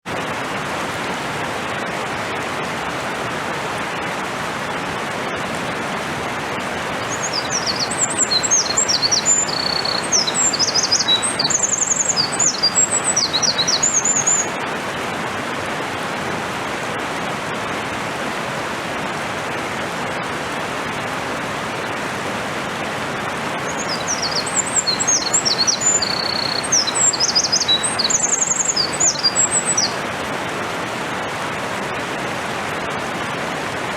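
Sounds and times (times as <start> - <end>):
mountain stream rushing: 0.1 - 33.9
wren singing high trills: 7.0 - 14.5, 23.7 - 30.0.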